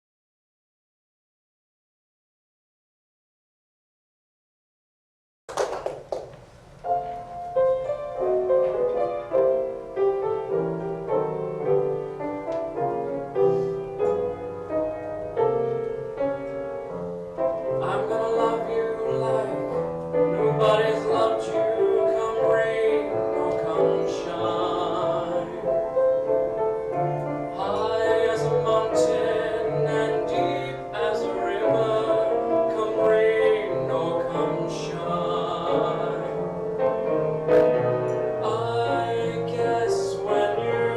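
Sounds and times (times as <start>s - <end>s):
piano ballad: 5.6s - 40.9s
man singing with vibrato: 17.6s - 26.2s, 27.5s - 36.9s, 37.6s - 40.9s.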